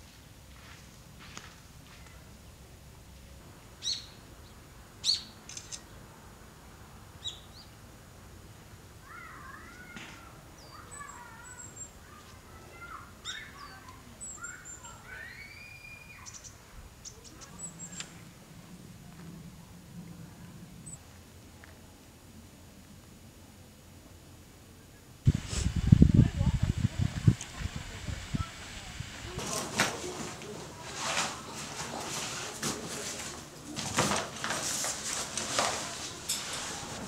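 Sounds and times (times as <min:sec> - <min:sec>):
birds chirping: 0:10.6 - 0:18.2.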